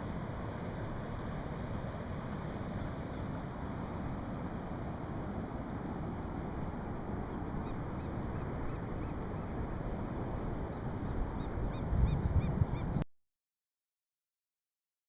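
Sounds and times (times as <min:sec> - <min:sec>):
wind rushing on microphone: 0:00.2 - 0:13.0
bird calling: 0:11.4 - 0:13.0.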